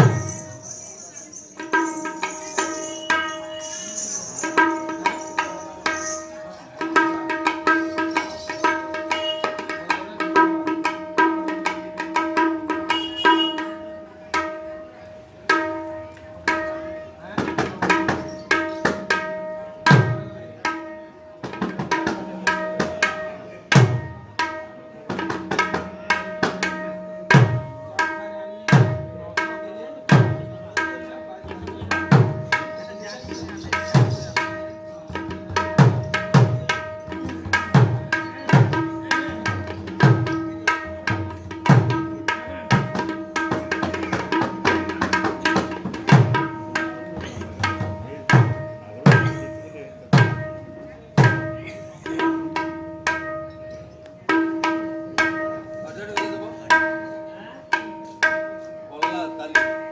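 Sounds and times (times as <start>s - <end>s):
drum treble strokes ringing: 0.0s - 9.9s, 31.4s - 56.7s.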